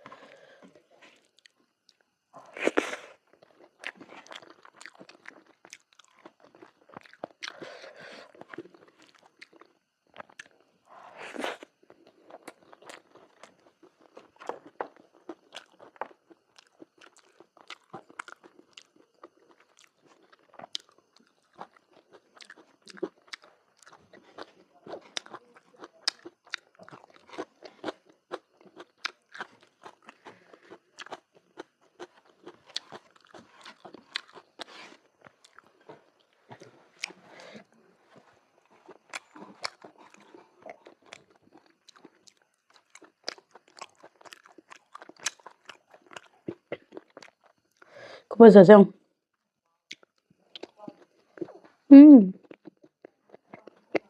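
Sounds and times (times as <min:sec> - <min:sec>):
person chewing food: 0:00.0 - 0:47.9, 0:49.9 - 0:54.0.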